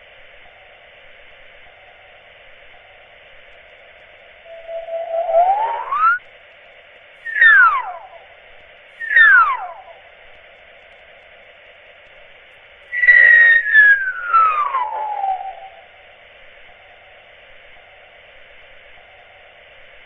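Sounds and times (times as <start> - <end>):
falling whistle glides: 4.4 - 6.2, 7.2 - 8.2, 9.0 - 10.0, 12.9 - 16.0.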